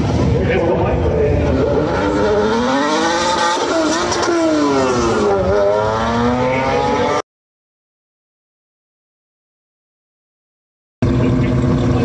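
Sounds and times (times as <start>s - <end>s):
car engine accelerating hard: 0.0s - 7.2s.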